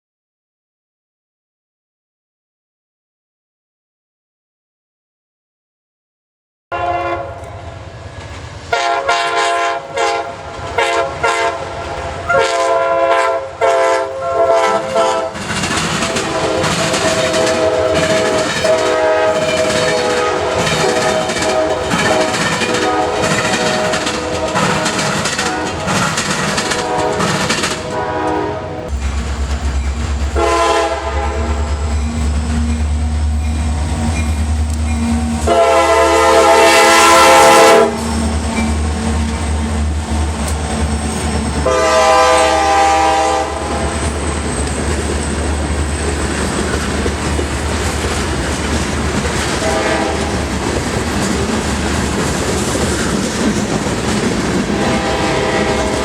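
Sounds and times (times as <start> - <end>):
locomotive horn blasts: 6.7 - 7.7, 8.7 - 15.4, 16.0 - 29.0, 30.4 - 32.7, 35.0 - 38.3, 41.6 - 44.1, 49.6 - 50.5, 54.7 - 56.0
clatter of train wheels: 8.1 - 35.9, 37.7 - 56.0.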